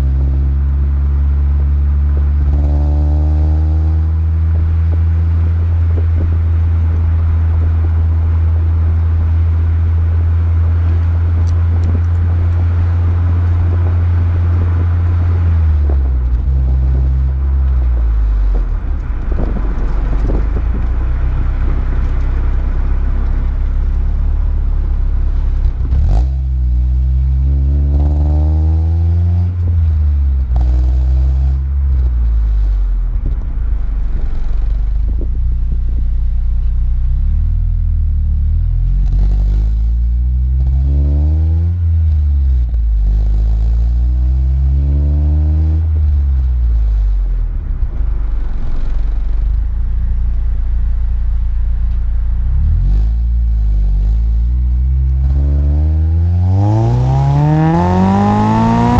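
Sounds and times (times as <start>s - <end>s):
car engine revving: 0.0s - 58.9s.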